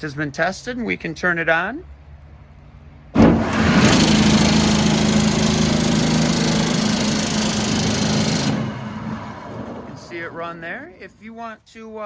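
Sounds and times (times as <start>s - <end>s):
exhaust blower rushing air: 3.2s - 11.2s.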